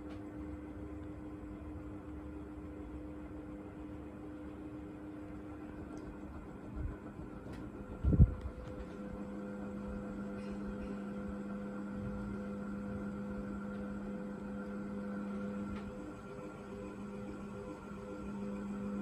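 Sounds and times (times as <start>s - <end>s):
ceiling fan motor humming: 0.0s - 19.0s.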